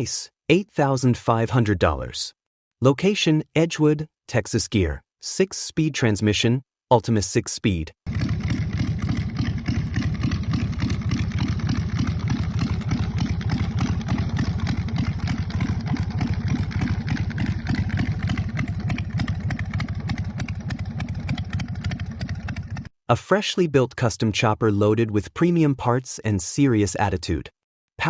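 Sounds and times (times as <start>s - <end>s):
motorcycle engine idling: 8.1s - 22.9s.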